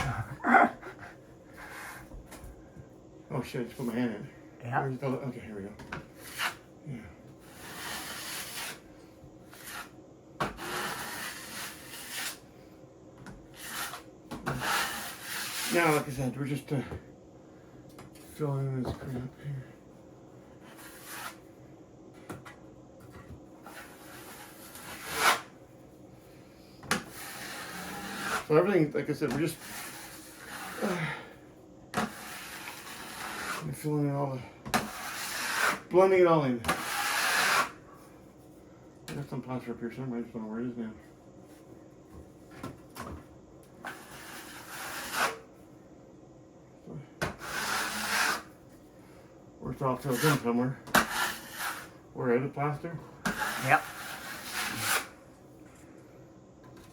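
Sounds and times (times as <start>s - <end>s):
trowel scraping wet plaster: 7.5s - 8.8s, 10.5s - 12.4s, 13.6s - 16.0s, 23.7s - 25.5s, 27.0s - 28.7s, 29.4s - 30.9s, 32.0s - 33.8s, 34.8s - 35.9s, 36.7s - 37.8s, 43.8s - 45.4s, 47.4s - 48.5s, 50.0s - 51.9s, 53.3s - 55.1s.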